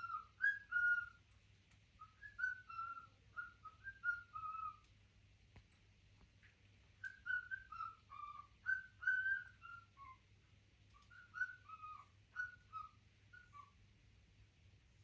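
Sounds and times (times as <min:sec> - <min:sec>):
melodic whistling: 0:00.0 - 0:01.2, 0:02.1 - 0:04.8, 0:07.1 - 0:09.9.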